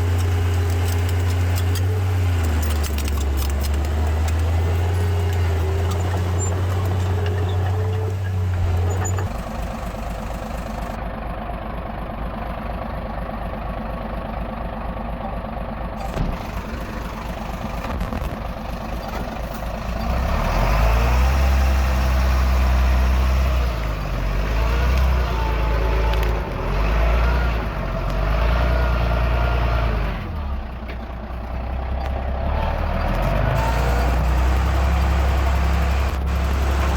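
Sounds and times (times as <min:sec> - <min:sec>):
diesel engines of heavy machinery: 0:00.0 - 0:36.9
low engine drone: 0:15.2 - 0:21.7.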